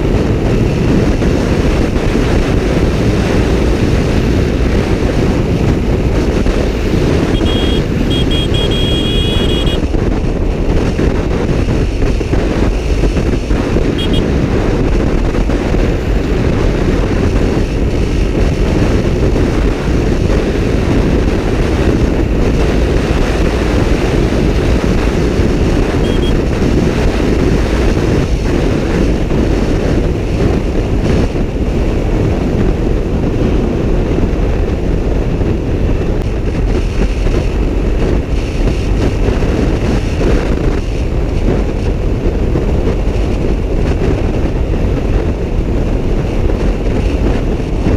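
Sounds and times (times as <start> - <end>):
motorcycle engine and road noise: 0.0 - 47.9
wind rush on microphone: 0.0 - 47.9
short high pulsed beeps: 7.3 - 9.8, 26.0 - 26.4.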